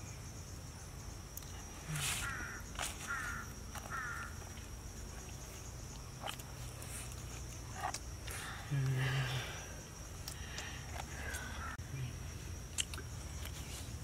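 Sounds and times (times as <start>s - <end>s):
high insect drone: 0.0s - 14.0s
bird calling: 1.9s - 4.5s, 10.4s - 11.8s.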